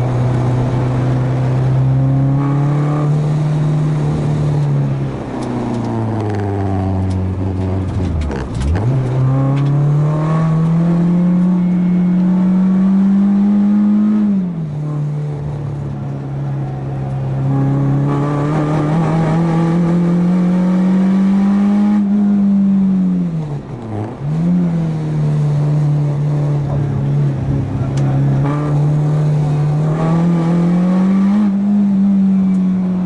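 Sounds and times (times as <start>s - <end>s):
race car engine accelerating: 0.0s - 33.0s.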